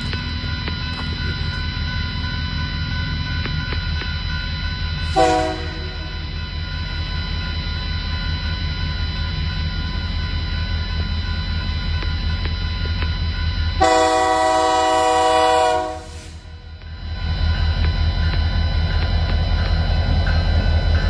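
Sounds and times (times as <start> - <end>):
diesel locomotive engine rumble: 0.0 - 21.0
locomotive air horn blast: 5.1 - 6.0, 13.8 - 16.4.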